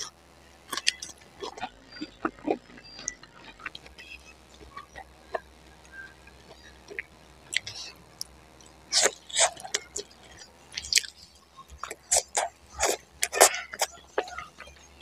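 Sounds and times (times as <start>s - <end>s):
biting and chewing food: 0.7s - 15.0s
wet mouth clicks: 6.5s - 14.3s.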